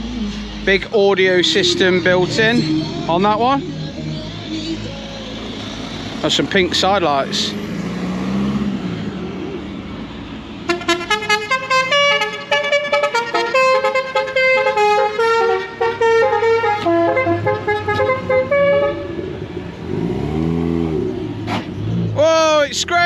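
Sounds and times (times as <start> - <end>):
musical car horn playing tune: 10.7 - 19.3.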